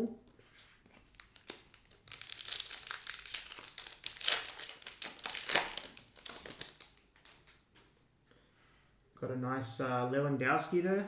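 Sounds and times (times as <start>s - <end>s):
foil wrapper crinkling: 0.4s - 7.9s.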